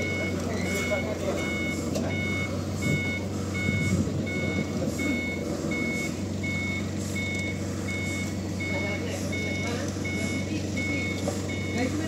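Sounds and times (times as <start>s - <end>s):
engine humming: 0.0s - 12.0s
reversing alarm beeping: 0.0s - 12.0s.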